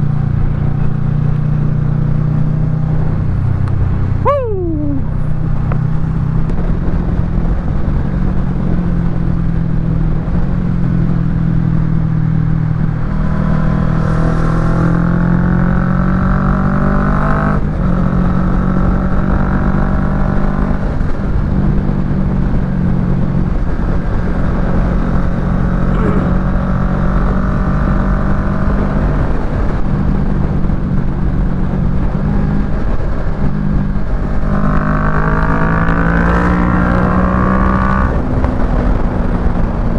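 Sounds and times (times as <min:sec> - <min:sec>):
motorcycle engine revving: 0:11.8 - 0:21.4, 0:22.8 - 0:39.9.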